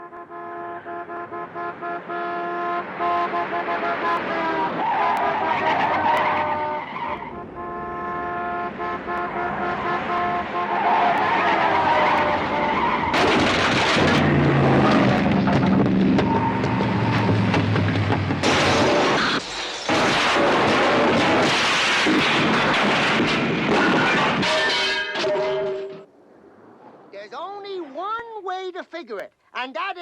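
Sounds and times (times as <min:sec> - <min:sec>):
car engines running: 0:01.1 - 0:24.4
tires squealing: 0:02.8 - 0:07.7, 0:08.8 - 0:25.9
loud tire skid: 0:03.4 - 0:07.4, 0:09.6 - 0:25.4.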